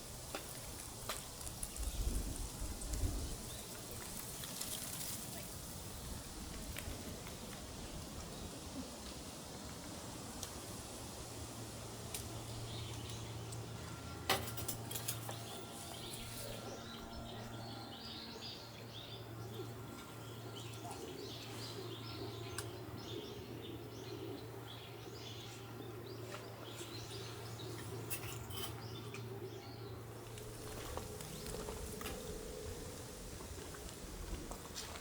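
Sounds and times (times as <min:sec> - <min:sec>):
steady low hum: 0:05.7 - 0:35.0
small birds chirping: 0:15.0 - 0:34.2.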